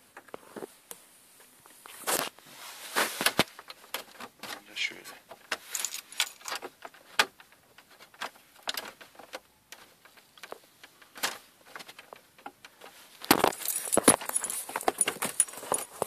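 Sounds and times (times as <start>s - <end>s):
rapid plastic clattering: 3.2s - 16.0s
plastic parts clicking and tapping: 3.3s - 16.0s.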